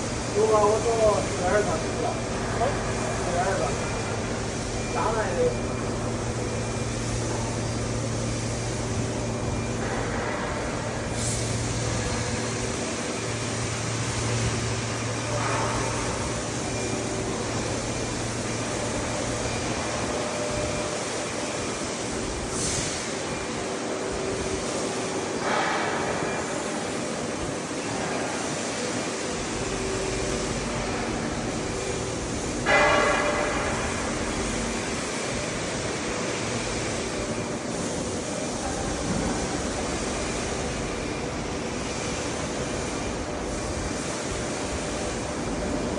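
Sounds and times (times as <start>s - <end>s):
laser cutting machine hum: 0.0s - 45.9s
ringing metallic clang: 32.6s - 34.6s.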